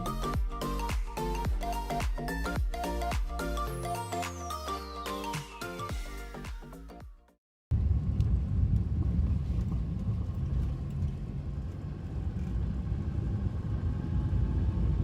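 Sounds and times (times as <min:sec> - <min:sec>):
car road and engine rumble: 0:07.7 - 0:15.0.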